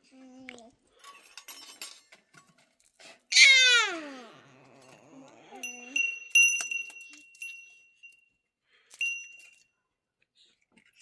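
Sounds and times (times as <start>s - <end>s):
sharp ringing clinks: 4.8s - 9.7s.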